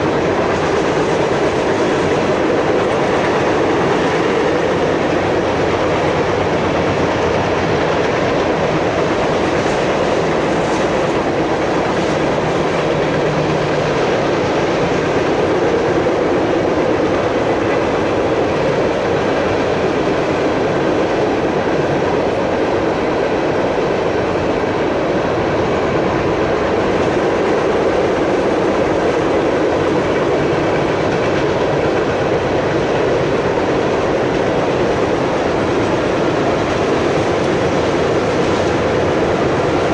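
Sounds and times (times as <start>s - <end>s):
steel train wheels rumbling on rails: 0.0s - 39.9s.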